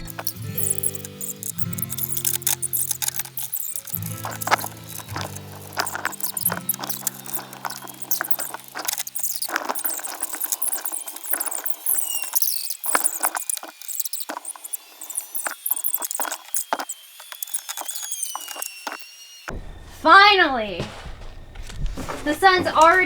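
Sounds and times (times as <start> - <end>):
tool prying plastic cover: 0.0 - 14.8.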